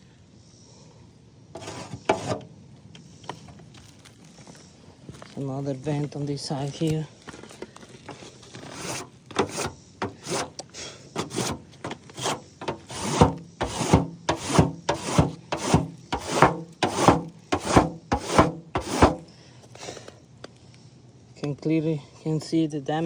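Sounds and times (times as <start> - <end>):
gritty scraping on roof: 1.6 - 2.5, 6.0 - 20.0.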